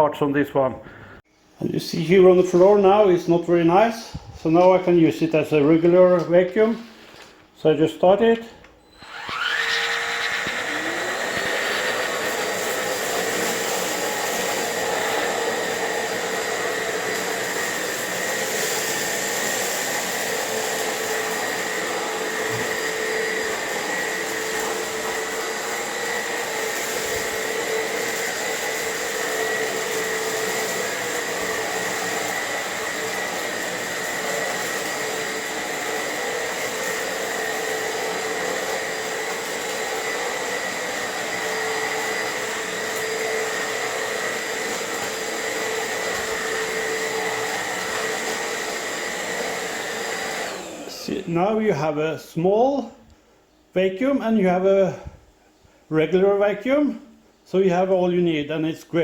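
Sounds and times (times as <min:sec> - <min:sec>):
cordless vacuum whining: 0:08.2 - 0:51.3.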